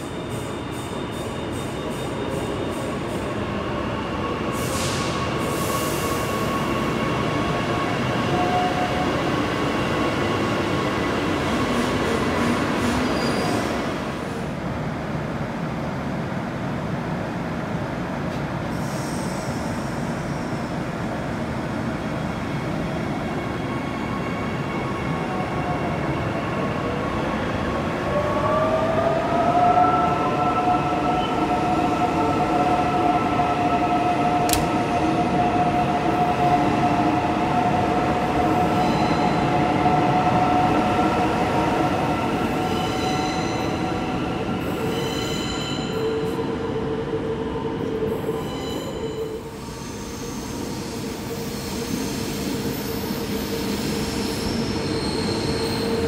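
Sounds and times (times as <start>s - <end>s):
sharp click: 34.5s - 34.7s.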